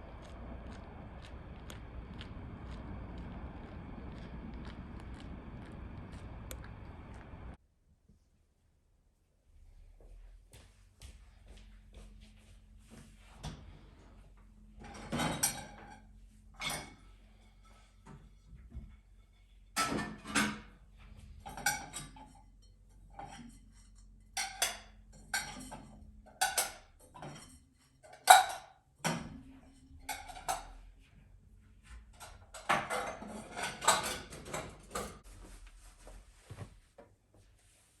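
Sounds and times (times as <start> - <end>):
faint low hum: 0.0 - 19.8
dishes and utensils clinking: 21.4 - 30.8, 32.2 - 35.2.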